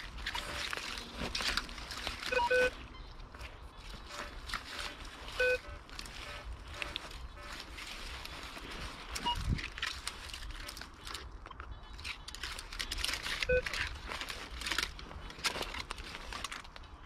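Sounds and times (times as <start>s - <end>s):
rustling and scraping: 0.0s - 17.0s
metal detector beep: 2.2s - 3.2s, 3.8s - 7.7s, 9.2s - 9.5s, 13.4s - 13.8s.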